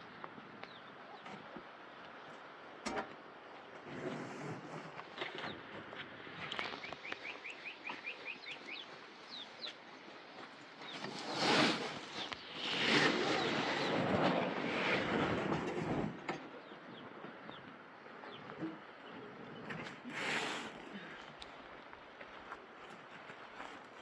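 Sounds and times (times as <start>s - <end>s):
small bird chirping: 6.4s - 9.8s.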